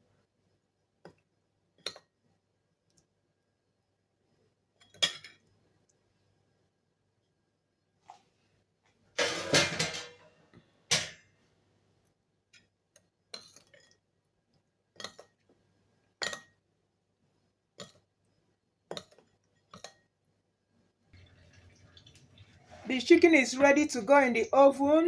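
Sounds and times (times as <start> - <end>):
dishware clinking and clattering: 9.2 - 10.3, 10.9 - 11.3.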